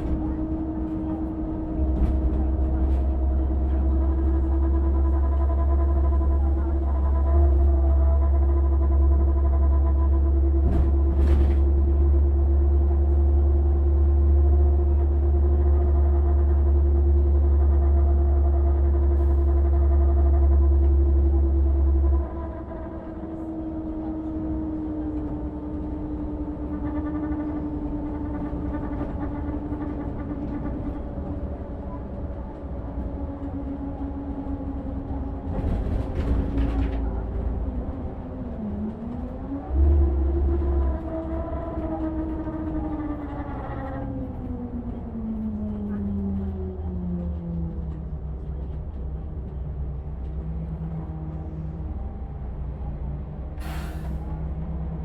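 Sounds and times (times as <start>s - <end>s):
car engine whine: 0.0s - 55.0s
loud deep rumble: 0.0s - 55.0s.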